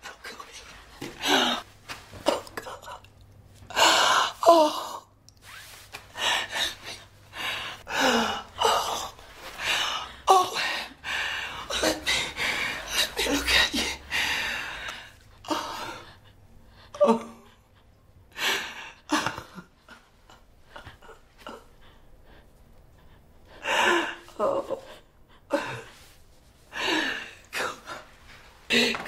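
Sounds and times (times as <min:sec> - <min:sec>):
woman sobbing: 0:18.6 - 0:22.0.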